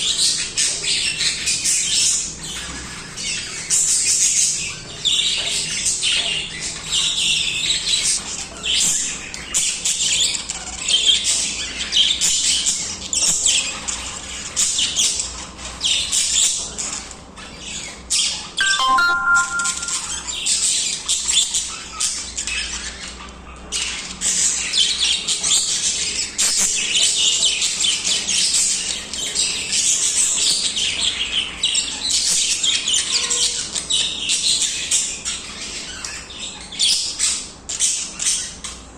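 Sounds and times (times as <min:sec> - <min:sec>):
budgerigars chattering and warbling: 0:00.0 - 0:38.9
short clear tone: 0:18.6 - 0:20.4.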